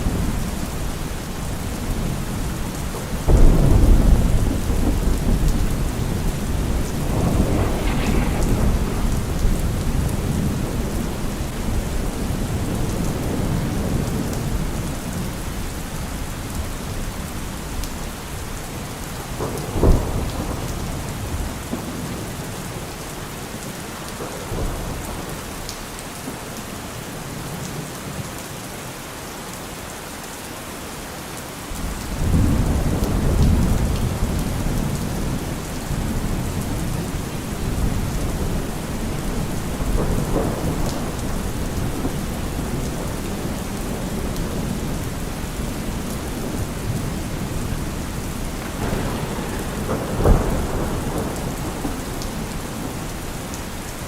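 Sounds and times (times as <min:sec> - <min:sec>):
thunder rumbling: 0:00.0 - 0:22.9, 0:31.8 - 0:54.0
heavy rain on a car roof: 0:00.0 - 0:54.0
sharp thunderclap: 0:03.0 - 0:14.8, 0:19.2 - 0:22.6, 0:31.8 - 0:54.0.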